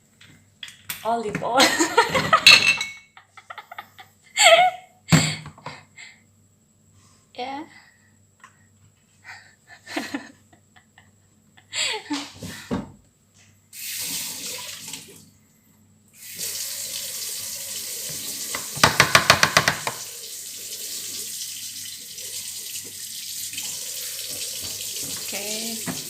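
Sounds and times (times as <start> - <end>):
kitchen tap running: 13.8 - 15.2, 16.2 - 26.0.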